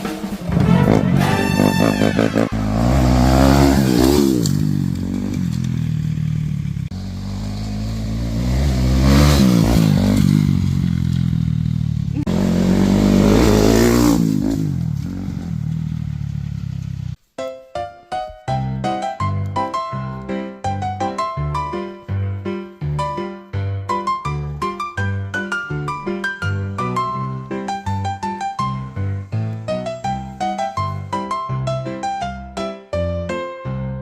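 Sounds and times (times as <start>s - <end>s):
engine revving: 0.0s - 17.2s.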